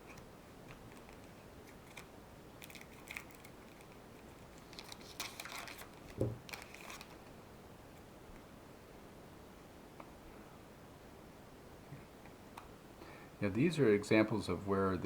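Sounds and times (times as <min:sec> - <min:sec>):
cards rustling and clicking: 0:00.1 - 0:07.3
soft thump: 0:06.2 - 0:06.4.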